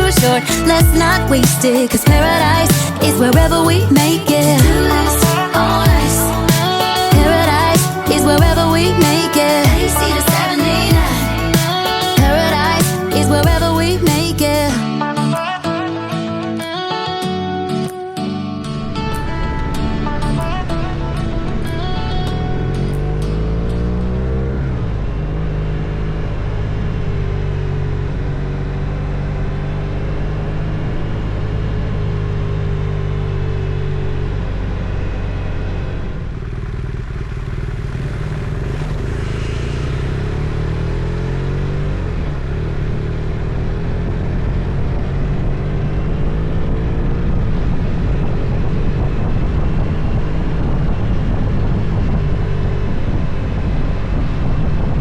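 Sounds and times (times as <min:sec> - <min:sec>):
motorcycle engine running: 0:00.0 - 0:14.8, 0:18.8 - 0:55.0.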